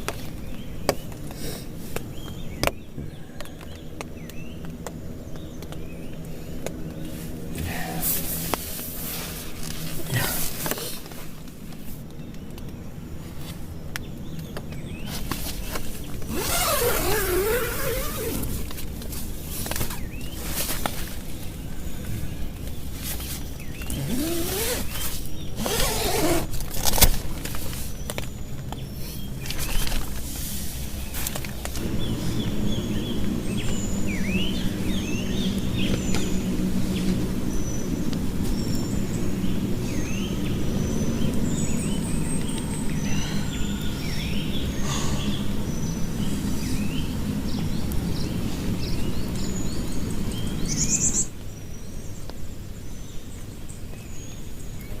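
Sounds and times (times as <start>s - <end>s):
steady rain: 30.7s - 43.0s
wavering whining tone: 31.8s - 37.8s.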